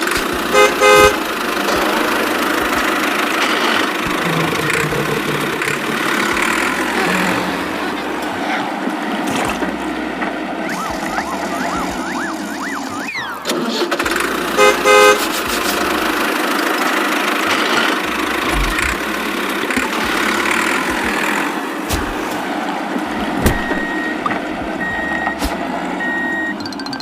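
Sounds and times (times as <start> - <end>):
engine running: 0.0 - 27.0
vehicle horn blasts: 0.5 - 2.2, 14.6 - 15.6.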